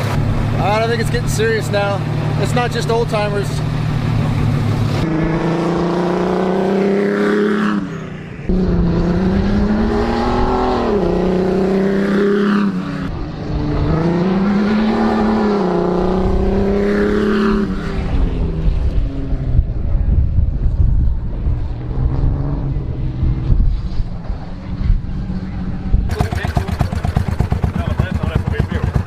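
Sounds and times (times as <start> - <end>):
race car engine accelerating: 0.0 - 19.4.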